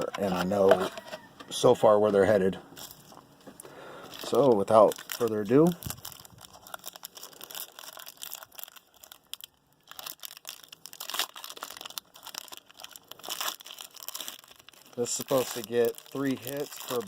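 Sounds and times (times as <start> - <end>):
plastic packaging tearing: 4.1 - 17.0.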